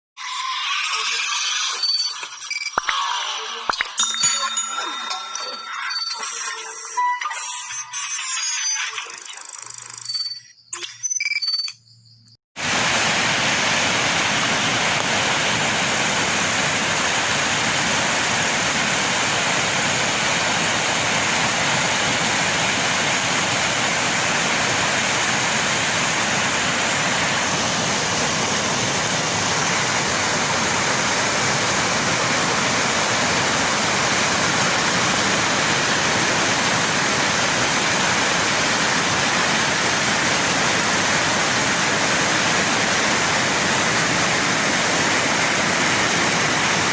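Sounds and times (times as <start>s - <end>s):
fast-flowing flood water rushing: 12.6s - 46.9s.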